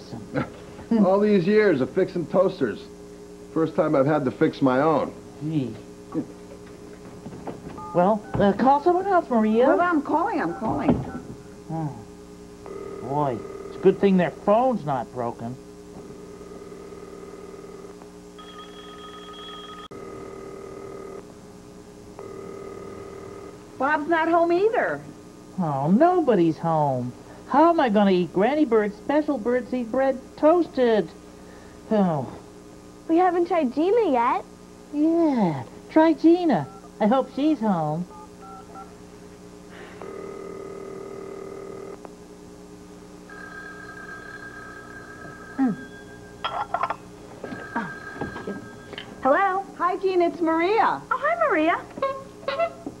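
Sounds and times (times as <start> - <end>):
telephone ringing: 10.2 - 11.3, 12.7 - 14.3, 16.2 - 21.2, 22.2 - 23.6, 36.6 - 36.9, 38.1 - 38.9, 40.0 - 42.0, 43.3 - 49.6.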